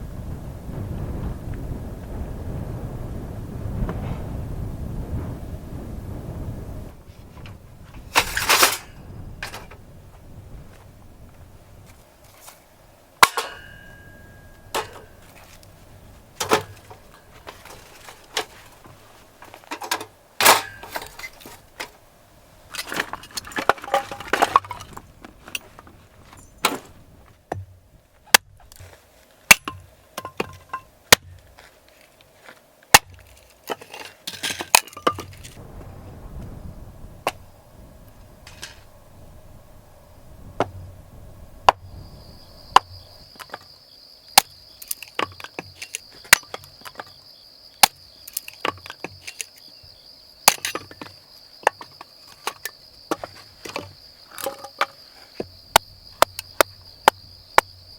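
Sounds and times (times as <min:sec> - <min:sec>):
small hard objects clinking: 0:16.4 - 0:18.8, 0:19.5 - 0:22.0, 0:22.7 - 0:25.8, 0:32.9 - 0:35.6, 0:44.8 - 0:47.2, 0:47.8 - 0:49.6, 0:50.4 - 0:55.3.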